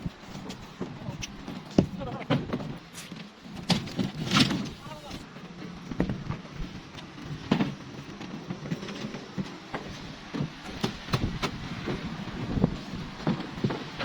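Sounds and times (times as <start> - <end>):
construction knocks and clatter: 0.0 - 14.0
steady background noise: 0.0 - 14.0.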